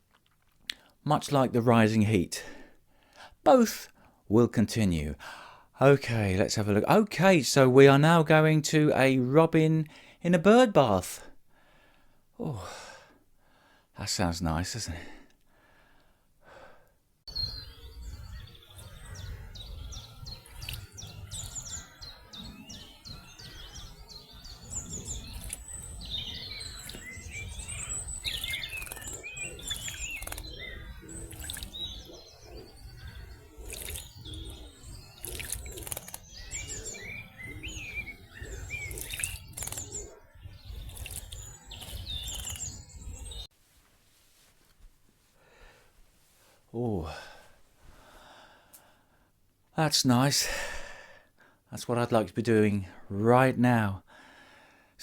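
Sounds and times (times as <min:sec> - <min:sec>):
birds chirping and trilling: 0:17.3 - 0:43.5
sharp clicks: 0:27.8 - 0:30.7, 0:35.2 - 0:36.8, 0:38.8 - 0:40.2.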